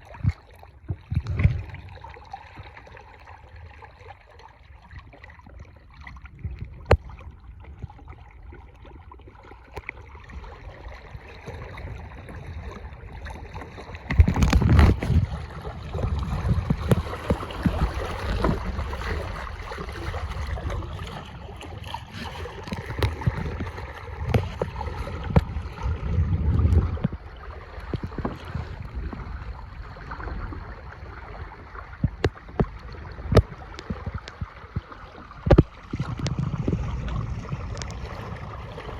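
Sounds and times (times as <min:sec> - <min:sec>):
water rushing along a hull: 0:00.0 - 0:38.9
water slapping: 0:00.0 - 0:38.9
wind buffeting microphone: 0:10.3 - 0:38.9.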